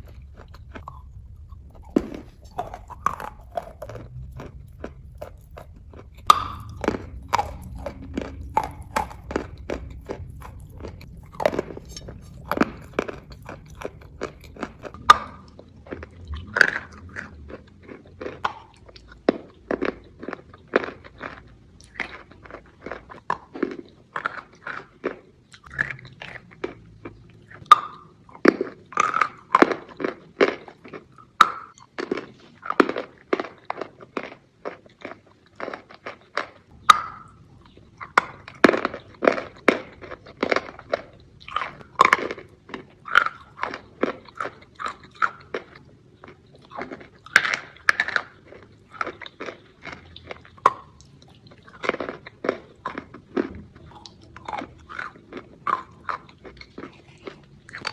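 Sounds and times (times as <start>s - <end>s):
chalk crunching between teeth: 0.0s - 15.6s.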